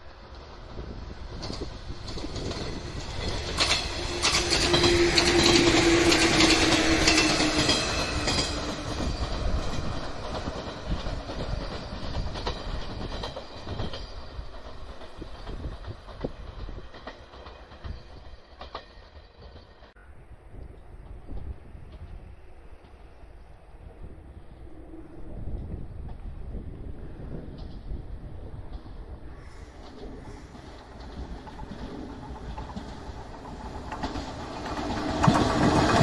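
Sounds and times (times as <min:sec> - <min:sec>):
train passing on rails: 0:00.0 - 0:36.0
wheels clacking over rail joints: 0:00.2 - 0:20.0, 0:28.6 - 0:36.0.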